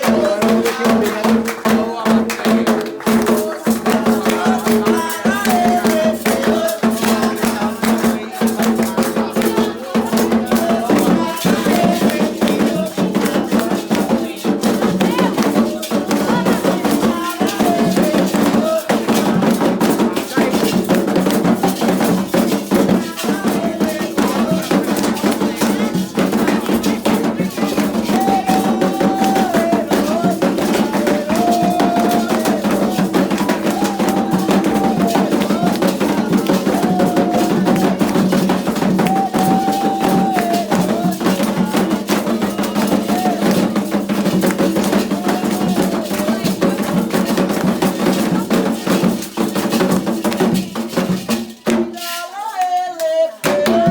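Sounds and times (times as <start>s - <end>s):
group chanting: 0.0s - 49.2s, 51.8s - 53.9s
drums and rattles rhythm: 0.0s - 53.9s
voices holding long sung notes: 21.7s - 43.8s.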